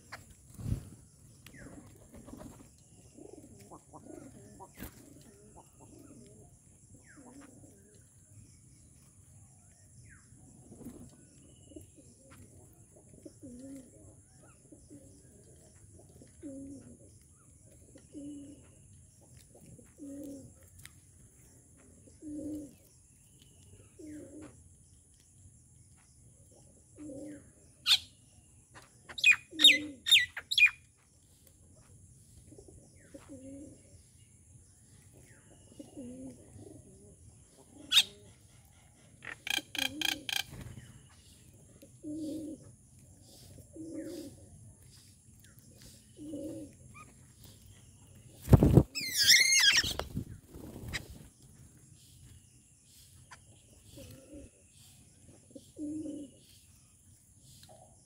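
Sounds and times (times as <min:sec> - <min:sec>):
dove cooing: 0:01.5 - 0:07.9, 0:11.7 - 0:17.1, 0:17.8 - 0:18.7, 0:19.6 - 0:20.6, 0:22.0 - 0:22.8, 0:23.8 - 0:24.6, 0:26.9 - 0:28.0, 0:29.2 - 0:30.3, 0:32.5 - 0:34.0, 0:35.6 - 0:40.7, 0:41.6 - 0:45.0, 0:45.8 - 0:47.6, 0:53.7 - 0:56.6.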